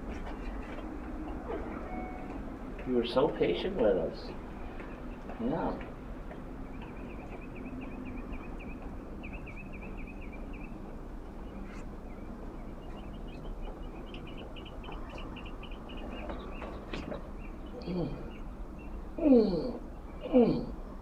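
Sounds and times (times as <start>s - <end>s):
bird chirping: 4.0s - 19.2s.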